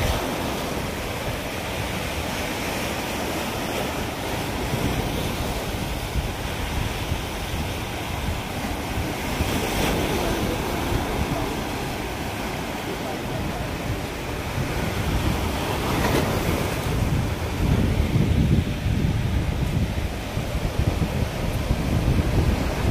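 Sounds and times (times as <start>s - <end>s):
sea waves washing ashore: 0.0s - 22.9s
wind buffeting microphone: 0.0s - 22.9s.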